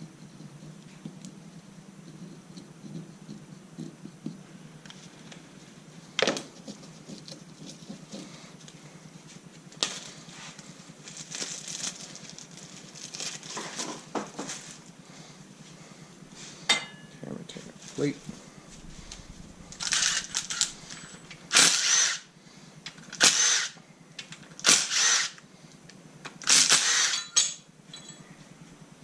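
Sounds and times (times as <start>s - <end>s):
metal parts rattling and scraping: 9.8s - 14.9s, 17.8s - 22.2s, 26.4s - 28.5s.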